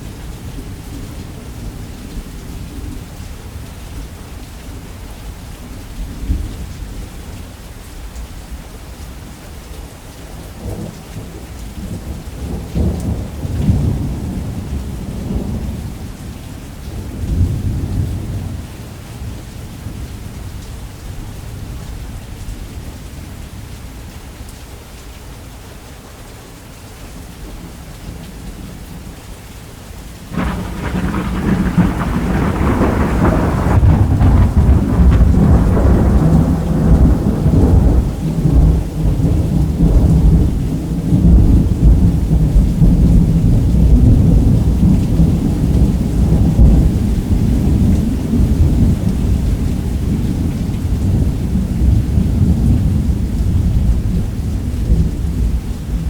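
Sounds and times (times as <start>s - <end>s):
steady rain: 0.0s - 56.0s
thunder crack and rumble: 30.3s - 56.0s.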